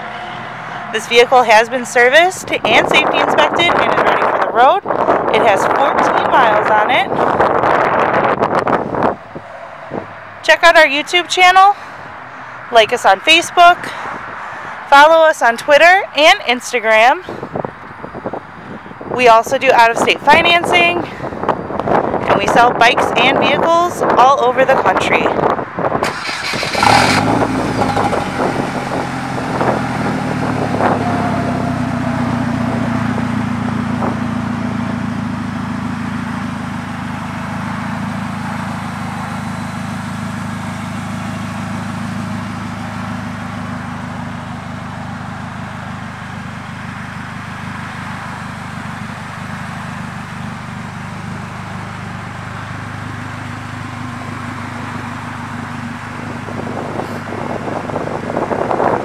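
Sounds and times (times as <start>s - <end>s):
wind buffeting microphone: 0.0s - 59.0s
engine idling: 26.0s - 59.0s.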